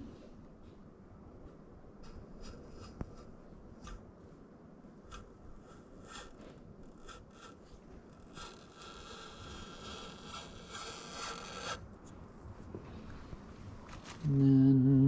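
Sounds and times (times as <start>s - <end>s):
piston scraping in bore: 5.0s - 11.8s.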